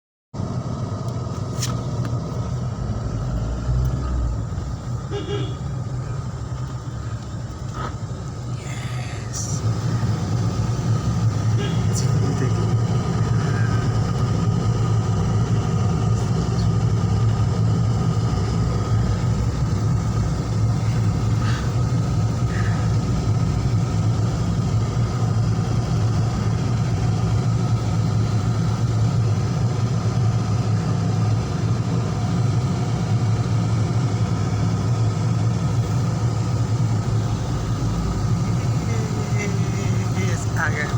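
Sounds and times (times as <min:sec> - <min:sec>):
vehicle engine rumble: 0:00.4 - 0:40.9.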